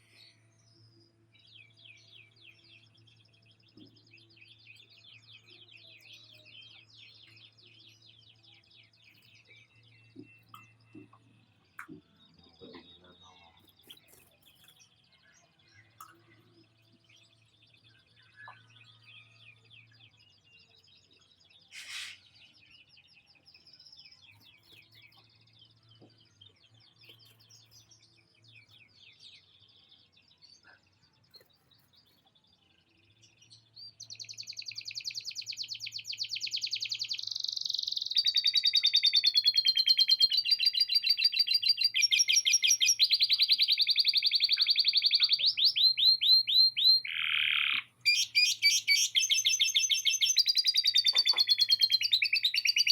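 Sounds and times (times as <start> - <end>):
canary singing trills: 1.6 - 52.9.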